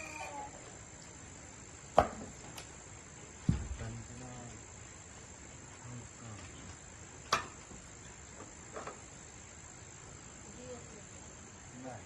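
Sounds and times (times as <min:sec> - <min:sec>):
insects droning: 0:00.0 - 0:12.0
soft knocks: 0:03.4 - 0:04.0.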